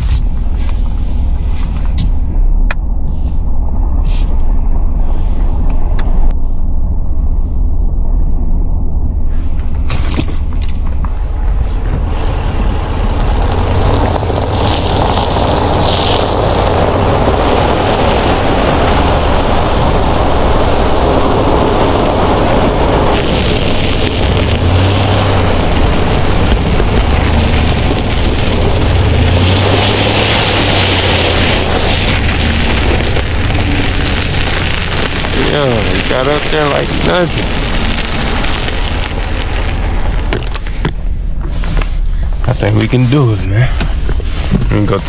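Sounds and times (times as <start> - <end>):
truck engine under load: 8.2 - 45.0
tyres on snow and ice: 9.3 - 45.0.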